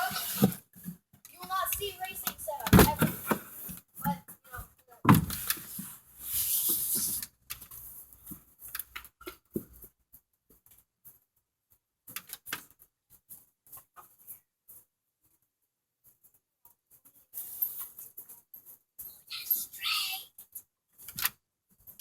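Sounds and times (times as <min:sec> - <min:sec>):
rustling noise: 0:00.0 - 0:11.8.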